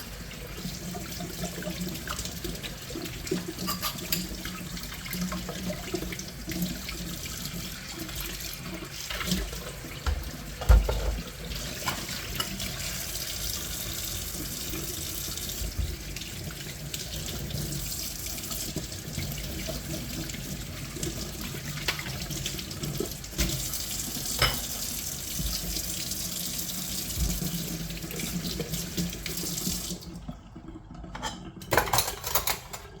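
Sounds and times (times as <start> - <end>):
tap water running into sink: 0.0 - 33.0
dishes knocking and clattering: 3.6 - 4.4, 10.0 - 12.6, 24.4 - 24.8, 31.1 - 33.0.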